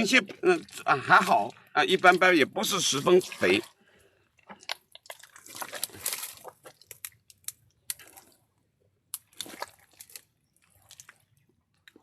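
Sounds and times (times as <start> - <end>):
mud squelching and sucking: 0.0 - 8.5, 9.1 - 11.5.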